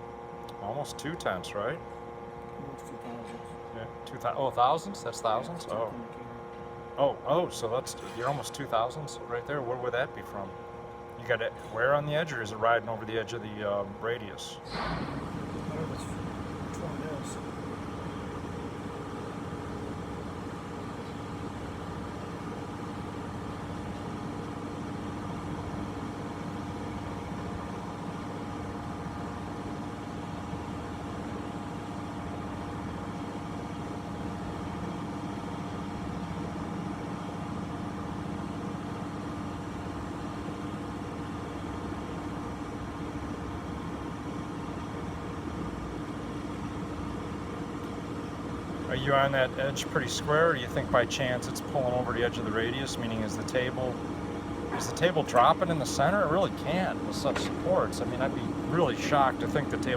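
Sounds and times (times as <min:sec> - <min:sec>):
grinder machine hum: 0:47.8 - 0:59.9.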